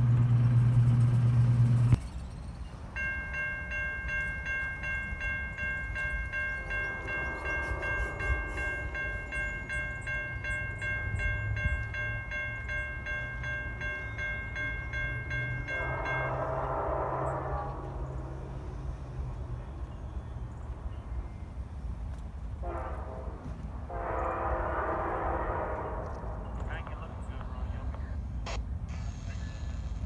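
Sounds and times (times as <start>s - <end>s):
loud low hum: 0.0s - 2.4s, 14.4s - 21.4s
crossing warning bell ringing: 0.0s - 21.2s
train rumbling: 0.0s - 30.0s.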